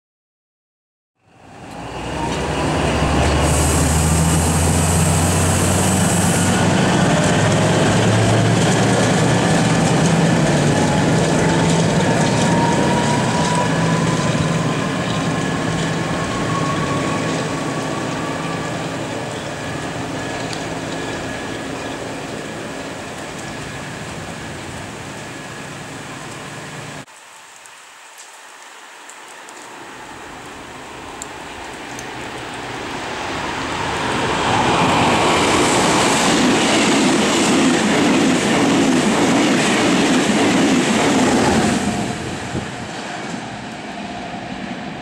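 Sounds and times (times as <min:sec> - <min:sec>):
rising train whine: 0:01.2 - 0:27.1, 0:29.3 - 0:45.0
train rumbling: 0:01.3 - 0:27.1, 0:30.0 - 0:45.0
high hiss: 0:01.8 - 0:07.1.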